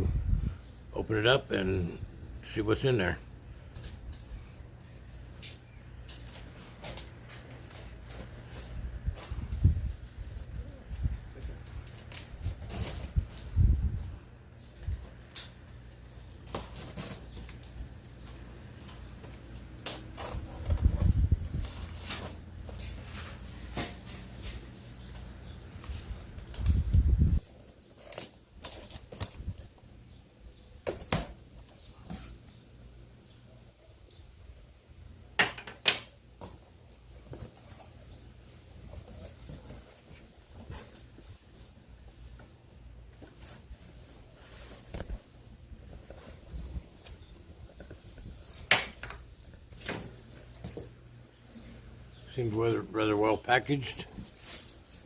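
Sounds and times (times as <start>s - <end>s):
packaging rustling and scraping: 11.6s - 13.6s, 14.6s - 29.9s, 36.7s - 42.4s, 43.1s - 48.7s.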